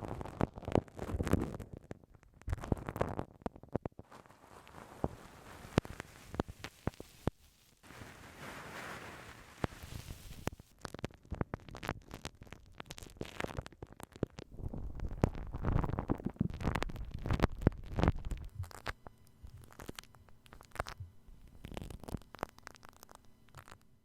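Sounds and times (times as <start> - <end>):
sharp crackles and clicks: 0.0 - 24.0
rubbing on microphone: 4.0 - 10.7, 13.1 - 20.0
low rumble: 14.6 - 18.8.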